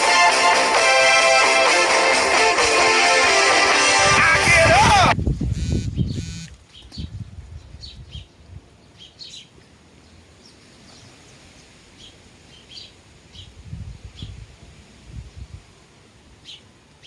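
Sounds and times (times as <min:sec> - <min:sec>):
sparrows chirping: 0:05.4 - 0:14.4, 0:16.4 - 0:17.0.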